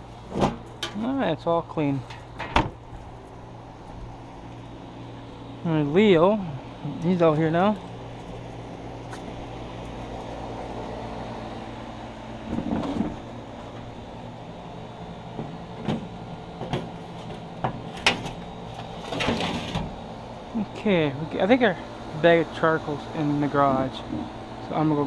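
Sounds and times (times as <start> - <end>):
steady mechanical hum: 0.0 - 25.0
rattling scrape: 17.9 - 19.9.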